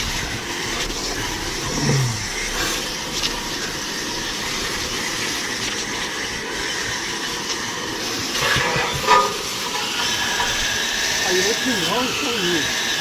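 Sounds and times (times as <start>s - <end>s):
hose spraying water on metal: 0.0s - 13.0s.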